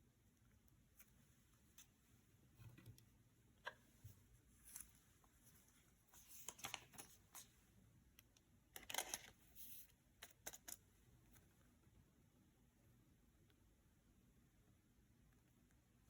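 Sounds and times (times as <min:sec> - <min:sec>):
trading cards rustling: 0:06.1 - 0:07.5.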